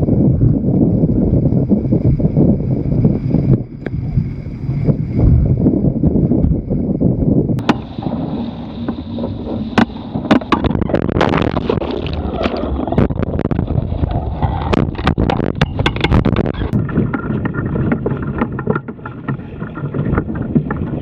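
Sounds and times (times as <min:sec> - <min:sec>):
wind buffeting microphone: 0:00.0 - 0:21.0
water rushing past hull: 0:07.5 - 0:21.0
water slapping hull: 0:07.6 - 0:21.0.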